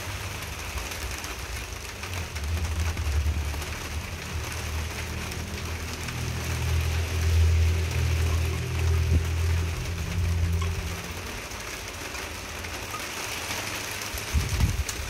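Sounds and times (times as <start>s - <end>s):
steady rain falling: 0.0s - 15.0s
low rumble: 2.1s - 11.8s.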